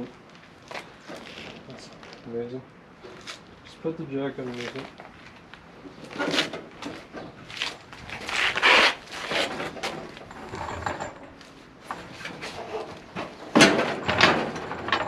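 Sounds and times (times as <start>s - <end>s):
scraping rubbing and knocking: 6.0s - 15.0s.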